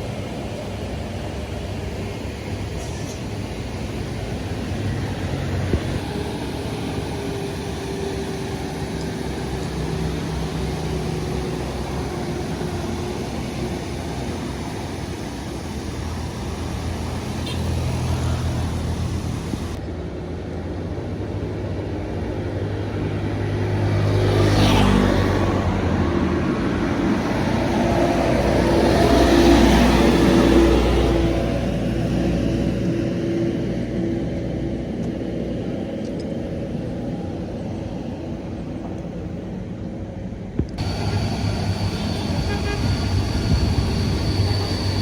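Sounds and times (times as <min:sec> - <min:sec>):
vehicles passing: 0:00.0 - 0:45.0.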